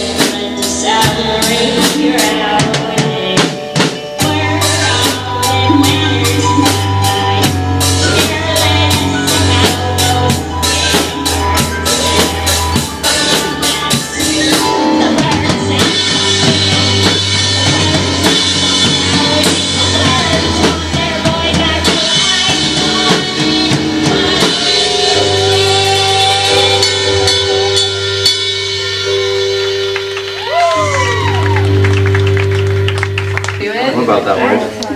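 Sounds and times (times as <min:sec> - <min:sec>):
rock band playing: 0:00.0 - 0:34.9
fast steady drumming: 0:01.0 - 0:27.8
held guitar and bass notes: 0:04.3 - 0:33.9.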